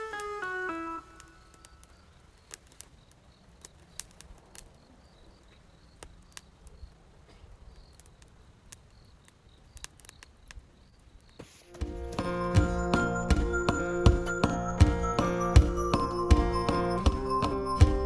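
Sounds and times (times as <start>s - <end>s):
faint insects chirping: 1.2s - 11.7s
campfire crackling and popping: 1.5s - 4.9s.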